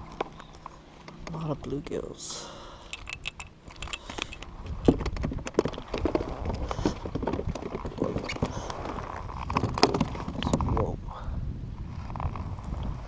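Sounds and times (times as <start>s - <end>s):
knocks and rattles of handling: 2.9s - 10.6s.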